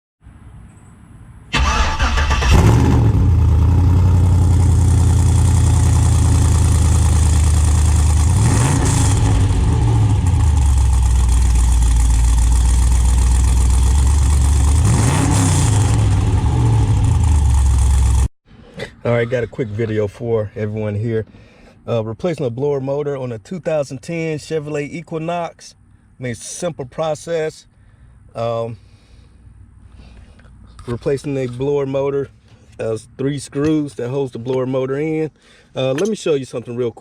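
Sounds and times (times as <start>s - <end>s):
car engine starting and idling: 1.5s - 18.3s.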